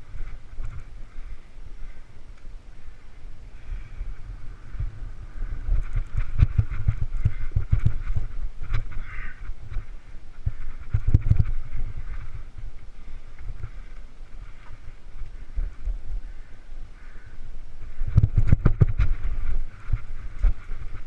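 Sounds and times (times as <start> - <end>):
wind rumble on microphone: 0.0 - 21.0
bike knocks and rattles: 5.6 - 12.7, 18.0 - 21.0.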